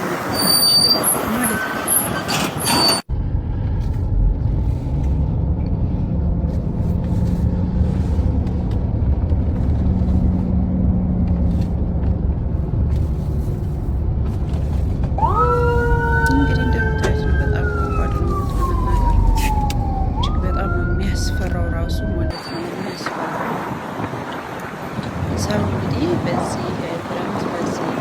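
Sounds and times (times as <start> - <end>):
loud low rumble: 3.1 - 22.3
emergency vehicle siren wailing: 15.2 - 23.2.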